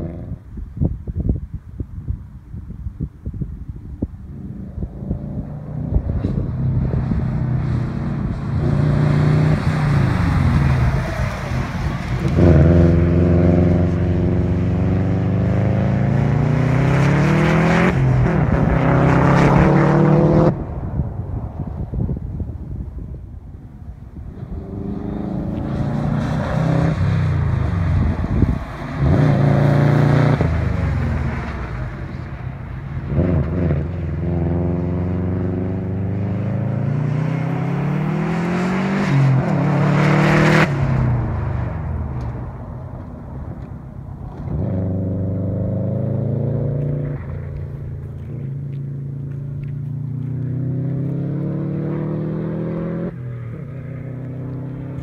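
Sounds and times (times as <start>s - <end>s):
car engine revving through gears: 4.9s - 10.8s, 12.0s - 20.6s, 24.5s - 31.4s, 33.1s - 41.2s, 44.3s - 48.8s, 49.8s - 53.2s.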